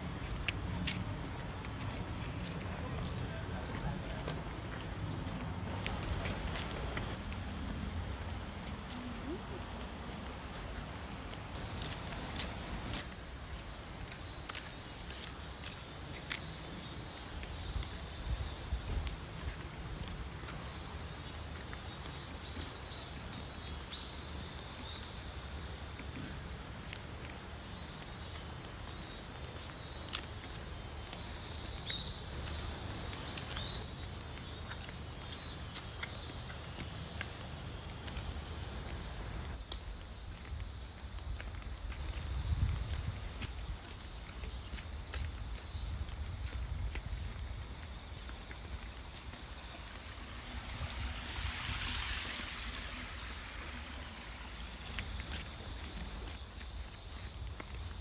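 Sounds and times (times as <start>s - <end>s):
rushing hiss of wind: 0.0s - 58.0s
wind rumbling on microphone: 38.3s - 58.0s.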